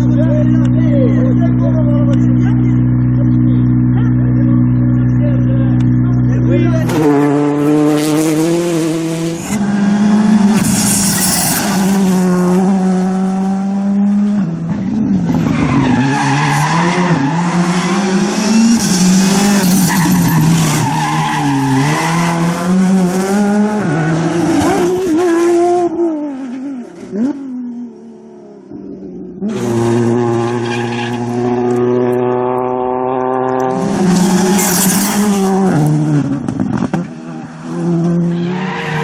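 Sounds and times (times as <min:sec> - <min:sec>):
rally car engine revving: 0:00.0 - 0:39.0
tyre squeal: 0:09.5 - 0:12.2, 0:18.7 - 0:22.5, 0:34.0 - 0:35.6.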